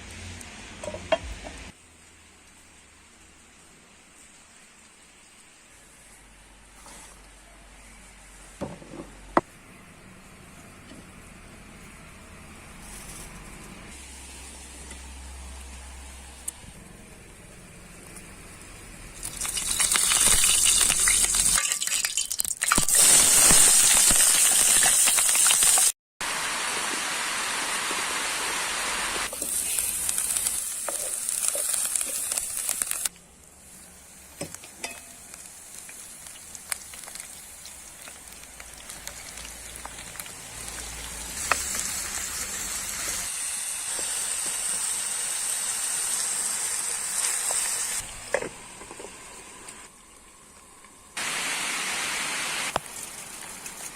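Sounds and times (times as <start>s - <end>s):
food sizzling in a frying pan: 19.2s - 48.1s.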